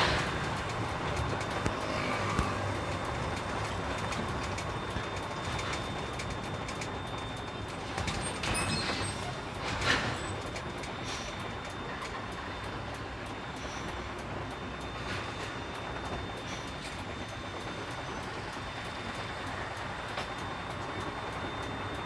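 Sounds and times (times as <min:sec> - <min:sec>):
truck engine running: 0:00.0 - 0:16.2.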